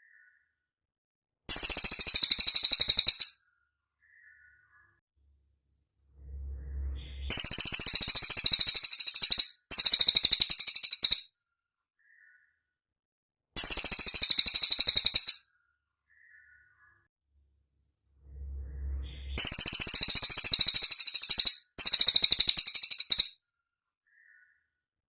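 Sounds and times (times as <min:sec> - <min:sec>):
bird high rattling trills: 0:01.5 - 0:03.3, 0:06.9 - 0:11.2, 0:19.0 - 0:23.3.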